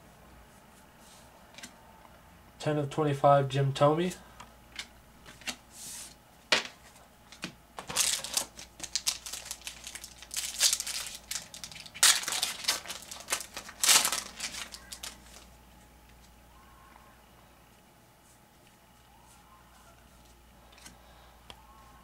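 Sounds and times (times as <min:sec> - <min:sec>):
card wrapper crinkling: 0:07.8 - 0:15.6.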